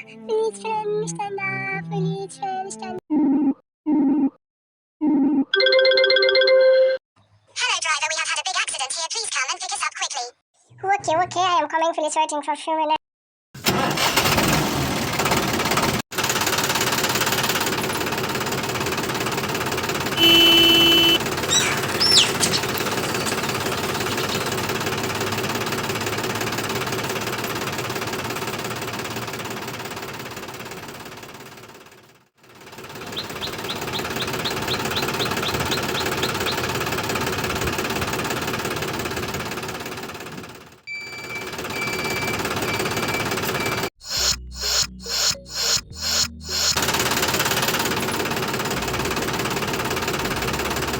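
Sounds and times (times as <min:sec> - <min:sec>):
toy motor buzzing and rattling: 0:19.2 - 0:25.3, 0:44.0 - 0:48.9.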